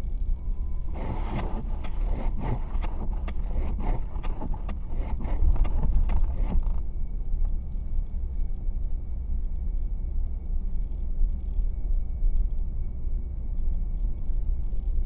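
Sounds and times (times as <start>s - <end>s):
road and engine rumble: 0.0s - 15.0s
knocks and swishes: 0.8s - 6.8s.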